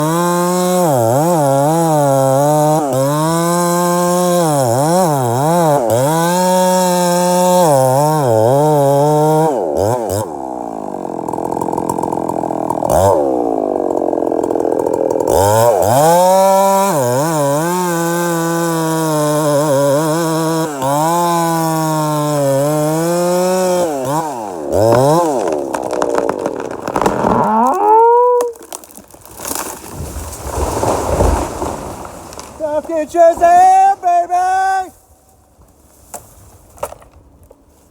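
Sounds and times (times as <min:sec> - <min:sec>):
chainsaw engine revving: 0:00.0 - 0:28.8.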